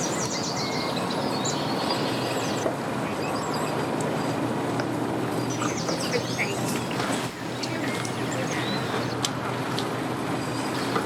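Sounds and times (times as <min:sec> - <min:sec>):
faint bird chirps: 0:00.0 - 0:03.8, 0:05.4 - 0:09.2
engines humming: 0:00.0 - 0:09.3, 0:10.2 - 0:11.0.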